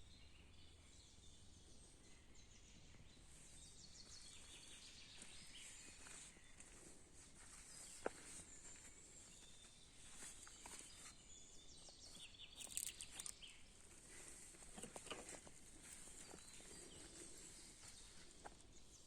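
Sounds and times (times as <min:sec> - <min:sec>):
small clicks and rustles: 0:12.1 - 0:17.0.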